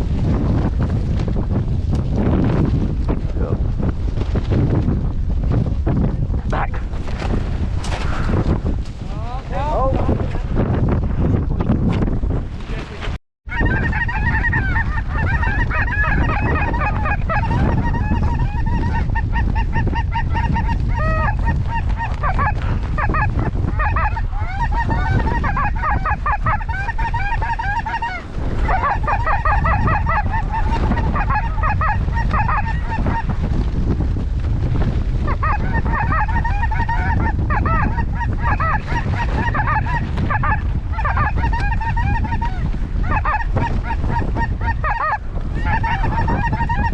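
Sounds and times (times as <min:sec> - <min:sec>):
wind noise on microphone: 0:00.0 - 0:46.9
geese honking: 0:13.5 - 0:33.3, 0:35.3 - 0:46.9.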